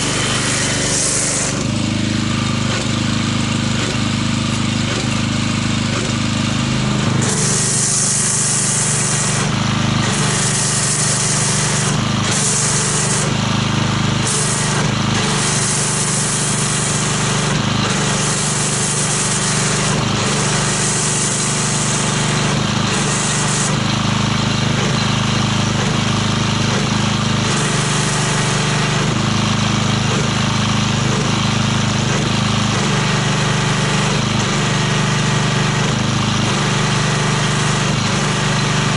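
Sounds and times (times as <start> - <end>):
electric pressure washer running: 0.0 - 38.9
hissing foam spray: 0.0 - 38.9.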